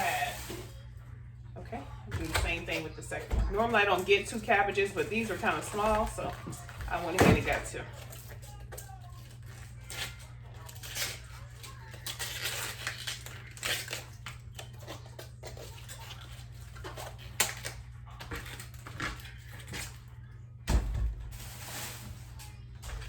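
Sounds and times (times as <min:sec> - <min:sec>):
cabbage leaves crackling and tearing: 0:09.2 - 0:20.1.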